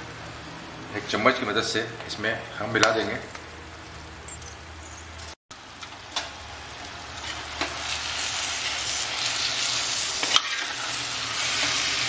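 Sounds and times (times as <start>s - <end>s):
paste sizzling in a wok: 6.4s - 12.0s.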